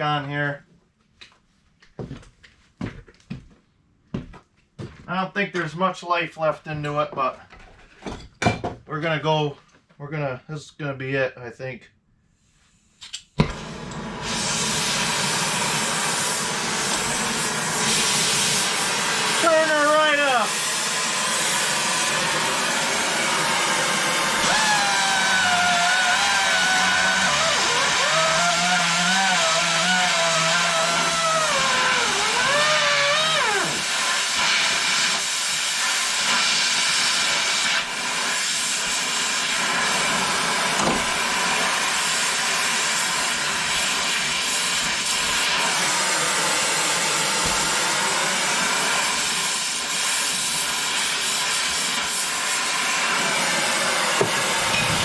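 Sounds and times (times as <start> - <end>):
air angle grinder hissing: 13.4 - 55.0.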